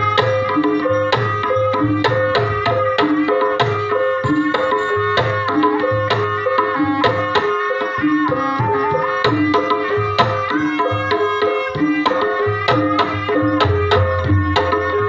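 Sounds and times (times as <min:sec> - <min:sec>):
ringing pitched percussion: 0:00.0 - 0:15.0
hand drum strokes: 0:02.1 - 0:11.9.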